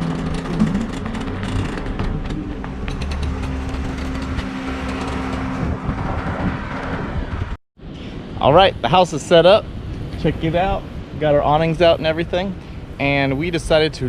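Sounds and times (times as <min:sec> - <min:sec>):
truck engine drone: 0:00.0 - 0:07.6
road noise: 0:00.0 - 0:14.0.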